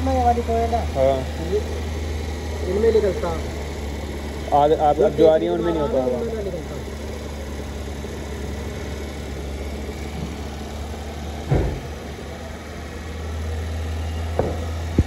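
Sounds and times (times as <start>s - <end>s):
car engine idling: 0.0s - 15.0s
single knock: 14.4s - 15.0s.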